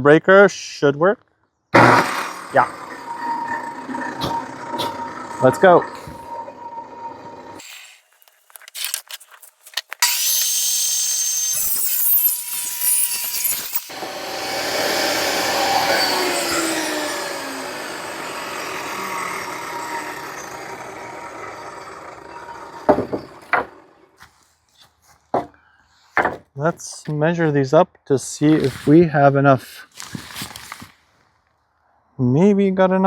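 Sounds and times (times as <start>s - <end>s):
table saw ripping board: 1.8s - 3.4s, 7.6s - 24.4s
table saw motor whine: 1.8s - 7.6s, 10.0s - 24.2s
knocks: 22.9s - 23.8s, 25.3s - 25.6s, 26.2s - 26.5s.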